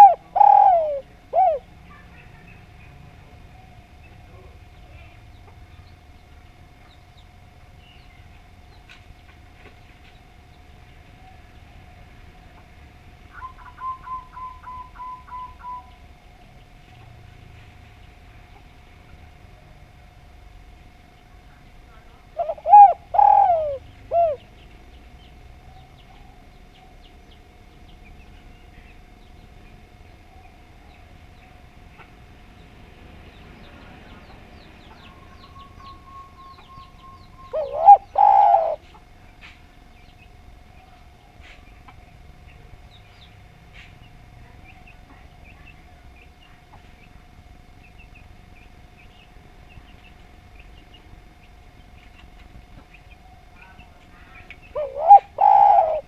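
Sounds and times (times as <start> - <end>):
dove cooing: 0.0 - 6.7, 13.3 - 16.4, 21.9 - 27.3, 33.6 - 42.0, 52.2 - 56.0
faint steady hum: 0.0 - 56.0.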